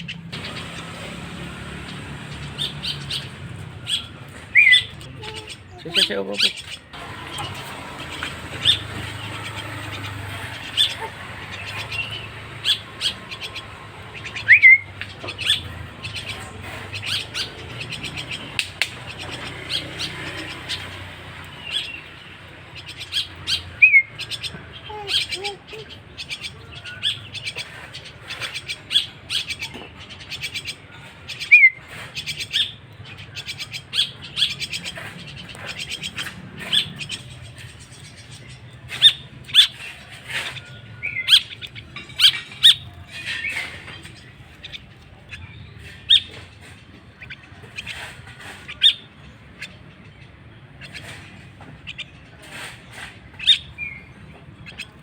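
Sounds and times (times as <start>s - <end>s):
bird chick chirping: 0.0s - 55.0s
whistled bird notes: 2.5s - 16.4s.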